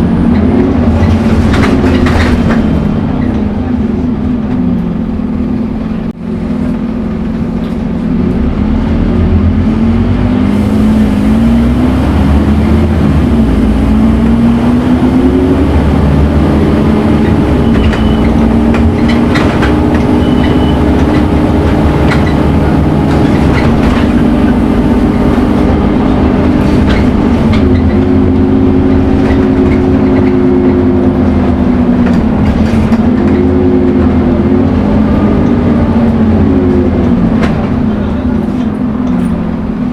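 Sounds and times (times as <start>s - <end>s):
bus diesel engine under load: 0.0s - 39.9s
engine whine: 0.0s - 39.9s.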